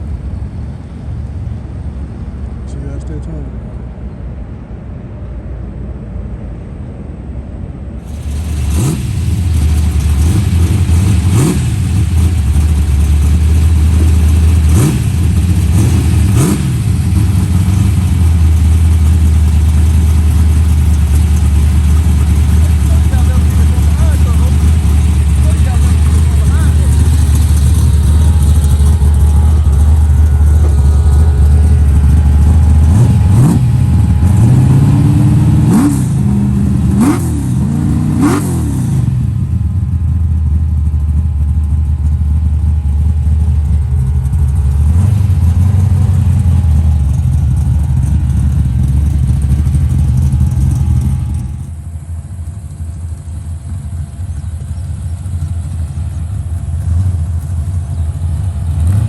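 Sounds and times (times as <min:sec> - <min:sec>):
car engine revving: 0:08.0 - 0:51.8, 0:53.0 - 0:59.0.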